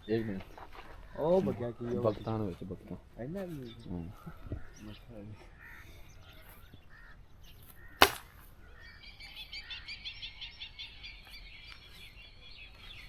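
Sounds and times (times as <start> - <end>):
rifle shot: 8.0 - 8.4.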